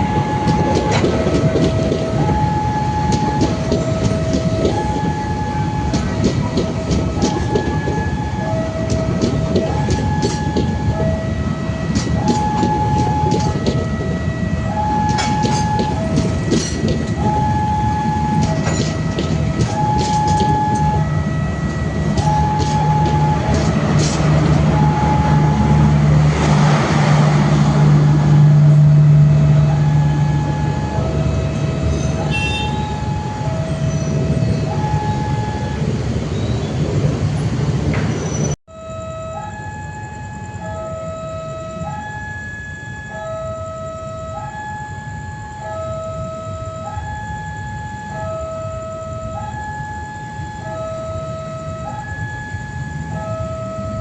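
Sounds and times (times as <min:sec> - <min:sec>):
train wheels clicking over rail joints: 0:00.0 - 0:29.0
diesel locomotive engine: 0:00.0 - 0:54.0.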